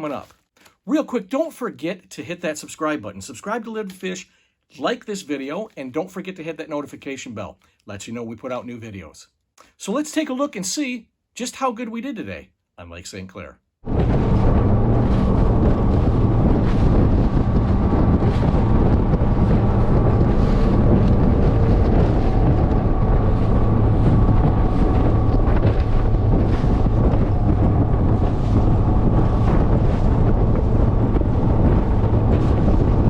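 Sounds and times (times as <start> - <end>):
outboard engine drone: 13.8 - 33.0
wind buffeting microphone: 13.8 - 33.0
boat hull slapping water: 13.9 - 33.0.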